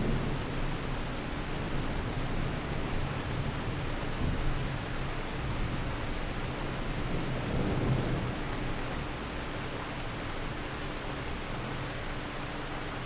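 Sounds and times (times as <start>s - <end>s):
rain hiss: 0.0s - 13.0s
thunder rumble: 6.9s - 9.4s.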